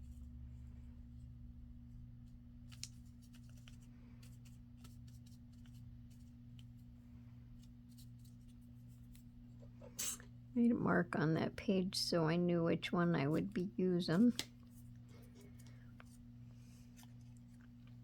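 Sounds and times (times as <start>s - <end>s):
low electrical hum: 0.0s - 18.0s
paper rustling and clicking: 2.7s - 6.8s, 14.1s - 14.8s.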